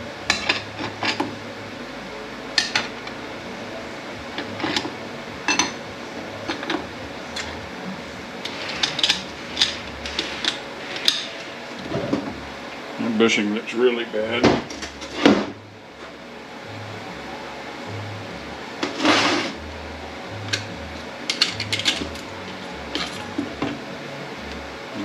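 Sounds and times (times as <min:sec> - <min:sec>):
metal clutch plates clinking: 0:21.3 - 0:22.3.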